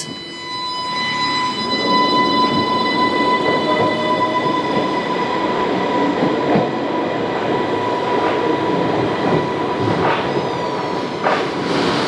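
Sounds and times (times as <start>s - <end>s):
train wheels rumbling on rail: 3.4s - 12.0s.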